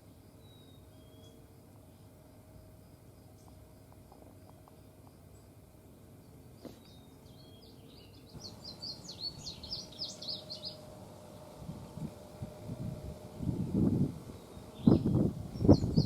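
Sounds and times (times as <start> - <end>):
songbird singing high notes: 6.8 - 16.0.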